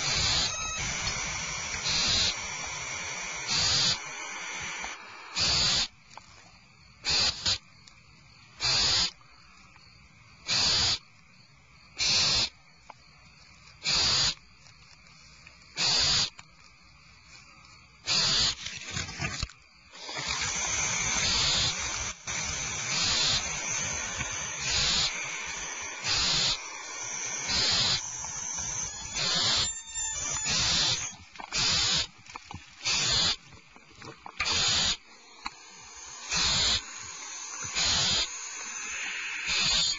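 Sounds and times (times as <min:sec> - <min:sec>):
owl nestlings hissing begging calls: 0:00.0 - 0:06.0, 0:07.0 - 0:07.6, 0:08.6 - 0:09.2, 0:10.4 - 0:11.1, 0:12.0 - 0:12.6, 0:13.8 - 0:14.4, 0:15.8 - 0:16.4, 0:18.0 - 0:32.1, 0:32.8 - 0:33.4, 0:34.4 - 0:39.9.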